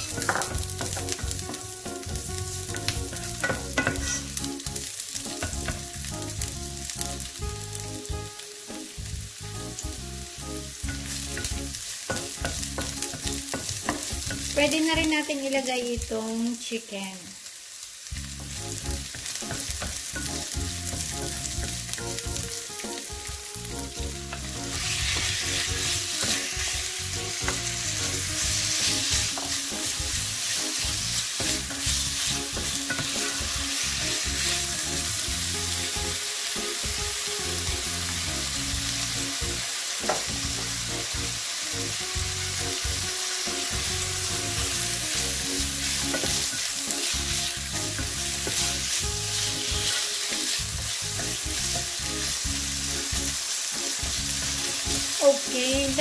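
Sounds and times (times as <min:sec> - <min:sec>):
chicken sizzling in a pan: 0:00.0 - 0:56.0
wooden spatula scraping a pan: 0:02.8 - 0:04.4, 0:27.4 - 0:34.6, 0:45.8 - 0:51.5.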